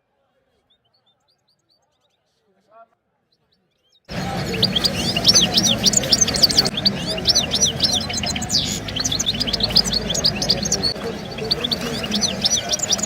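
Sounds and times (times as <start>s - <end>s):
songbirds chirping and singing: 3.4s - 13.0s
low background noise: 4.1s - 13.0s.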